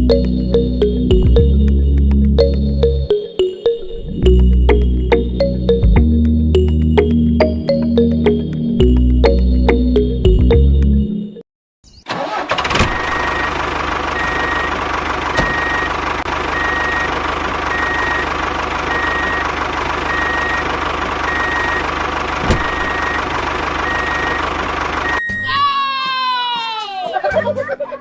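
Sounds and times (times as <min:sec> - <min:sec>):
tractor engine running: 0:00.0 - 0:11.0, 0:12.1 - 0:25.2
music: 0:00.0 - 0:11.4, 0:25.2 - 0:28.0.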